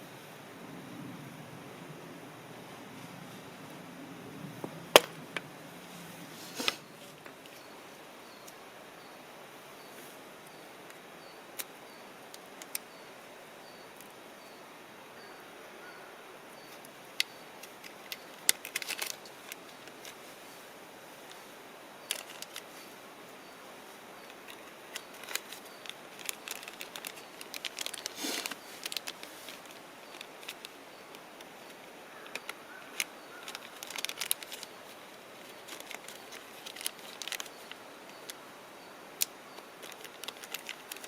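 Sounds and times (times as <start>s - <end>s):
steady low hiss: 0.0s - 41.0s
sharp clicks and crackles: 12.3s - 12.9s, 17.2s - 20.2s, 22.0s - 22.8s, 24.2s - 38.4s, 39.2s - 41.0s.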